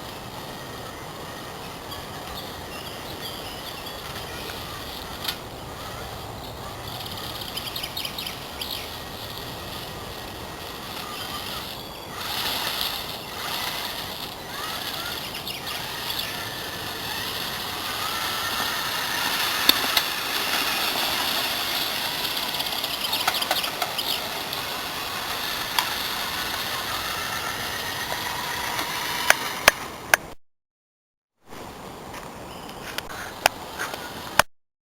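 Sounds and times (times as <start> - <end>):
toy truck motor whining: 0.0 - 30.2
sharp clicks: 7.0 - 30.3.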